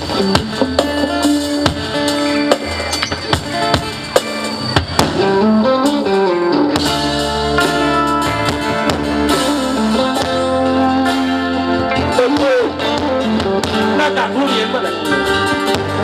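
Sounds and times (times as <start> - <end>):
drum kit beat: 0.0 - 16.0
live band playing: 0.0 - 16.0.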